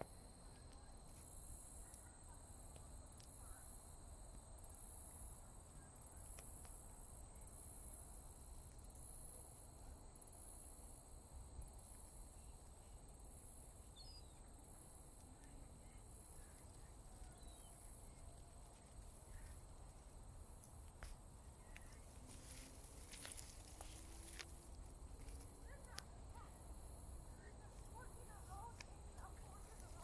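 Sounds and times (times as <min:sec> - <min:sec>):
faint bird chirps: 0:13.7 - 0:19.7.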